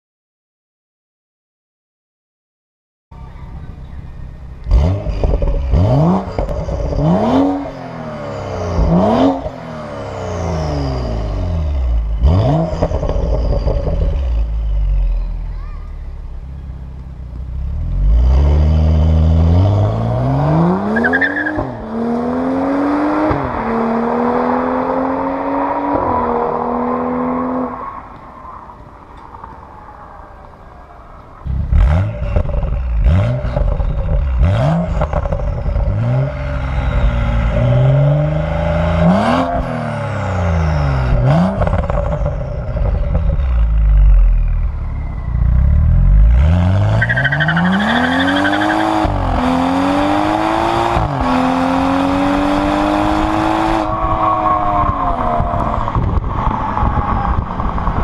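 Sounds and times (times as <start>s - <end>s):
car engine accelerating hard: 3.6s - 15.5s, 17.4s - 28.1s, 31.2s - 58.0s
exhaust clicks and pops: 4.4s - 7.0s, 31.4s - 36.1s.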